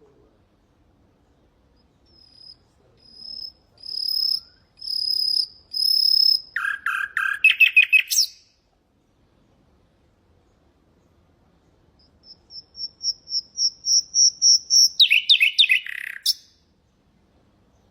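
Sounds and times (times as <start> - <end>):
nightingale singing: 1.2 - 8.6, 10.4 - 16.7.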